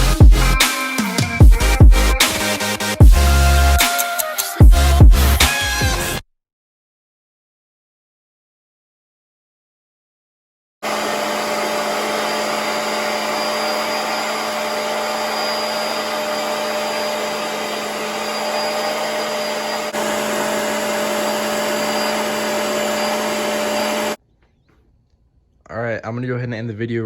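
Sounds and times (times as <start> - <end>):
shop vacuum motor whining: 10.8 - 24.2.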